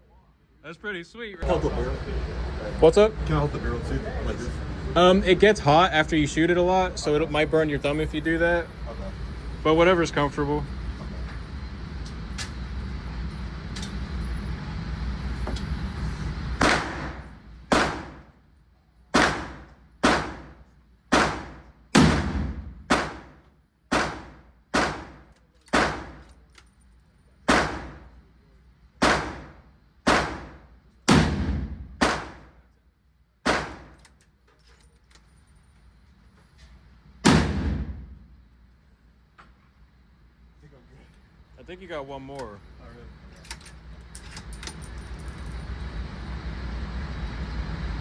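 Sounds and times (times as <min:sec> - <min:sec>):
steady background noise: 0:00.0 - 0:48.0
gunshots at indoor range: 0:16.6 - 0:18.4, 0:19.1 - 0:26.4, 0:27.4 - 0:28.2, 0:29.0 - 0:32.7, 0:33.4 - 0:34.1, 0:37.2 - 0:38.2.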